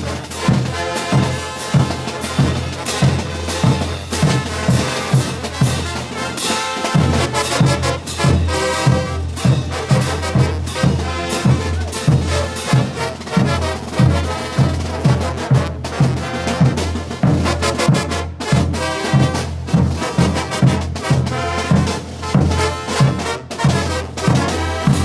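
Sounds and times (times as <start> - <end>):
bass drum beat: 0.0 - 17.6
trumpets and trombones playing: 0.0 - 25.0.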